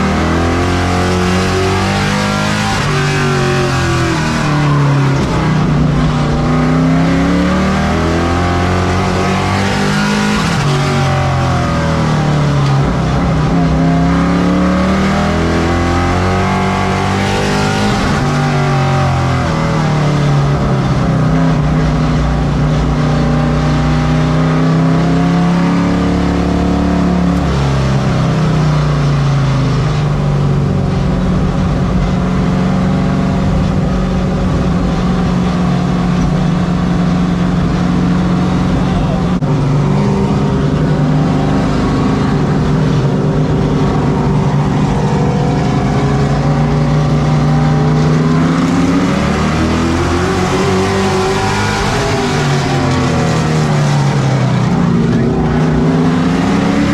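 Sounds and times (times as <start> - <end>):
race truck engine revving: 0.0 - 56.9.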